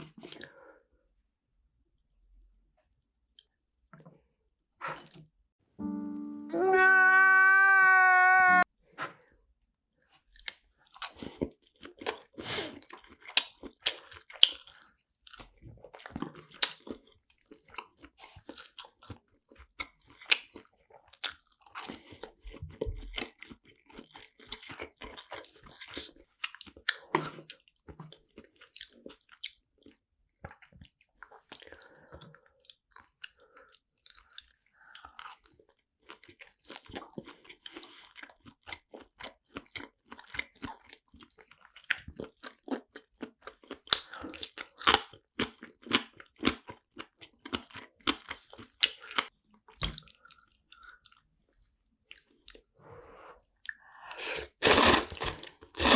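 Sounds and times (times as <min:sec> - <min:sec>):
chewing and biting food: 0:10.4 - 0:52.7, 0:53.7 - 0:55.9.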